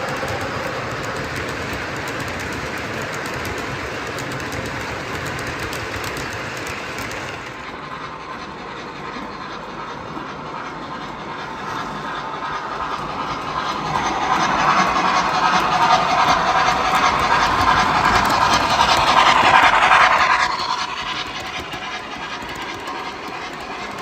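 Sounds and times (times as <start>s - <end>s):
model train rolling clatter: 0.0s - 24.0s.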